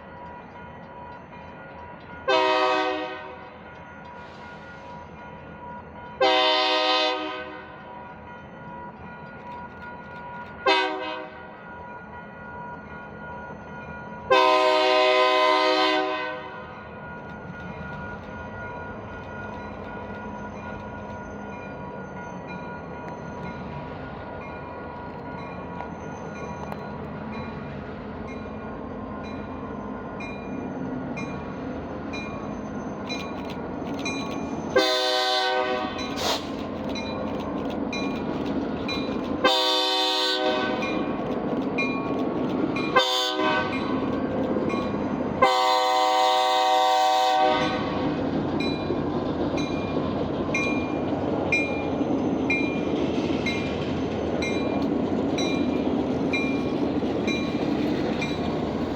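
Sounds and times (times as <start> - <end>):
train rumble: 0.0 - 58.9
locomotive air horn blasts: 2.3 - 3.4, 6.2 - 7.8, 10.7 - 11.4, 14.3 - 16.7, 34.8 - 36.2, 39.4 - 40.9, 43.0 - 43.9, 45.4 - 48.2.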